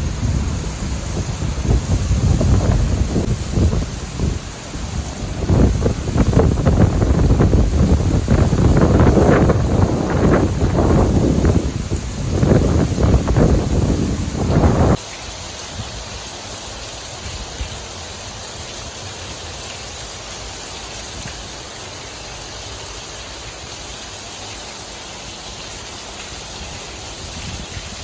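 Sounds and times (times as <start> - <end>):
wind buffeting microphone: 0.0 - 15.0, 26.6 - 28.0
heavy rain: 0.0 - 28.0.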